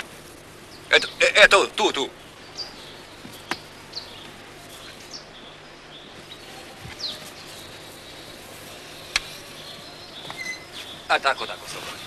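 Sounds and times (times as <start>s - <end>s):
steady hiss: 0.0s - 12.0s
high falling bird chirps: 2.2s - 11.6s.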